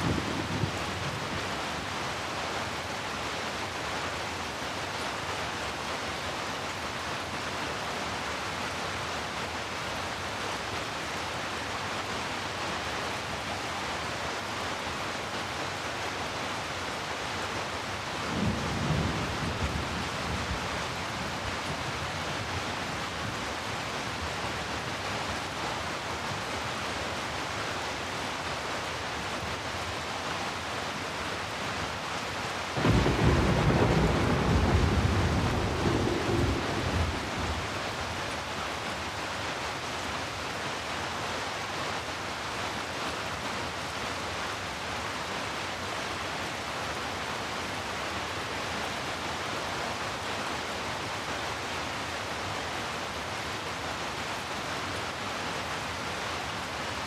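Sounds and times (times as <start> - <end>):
steady rain hiss: 0.0 - 57.0
thunder rolling: 32.8 - 37.8.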